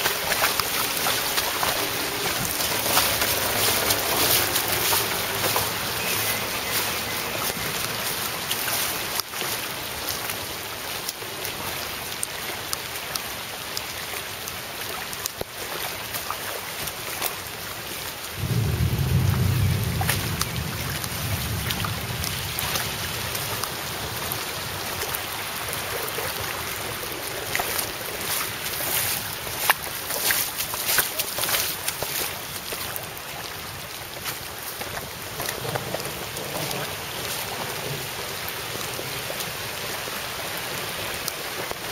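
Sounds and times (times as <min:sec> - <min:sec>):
heavy rain falling: 0:00.0 - 0:41.9
raindrops ticking close by: 0:00.0 - 0:41.9
deep rumble of thunder: 0:18.4 - 0:23.5.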